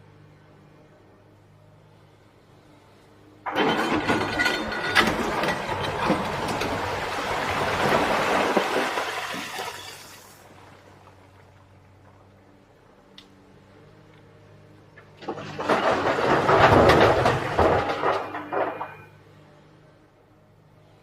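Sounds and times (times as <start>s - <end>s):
excavator engine hum: 0.0s - 21.0s
rock and earth crashing: 3.5s - 10.1s, 15.2s - 19.1s.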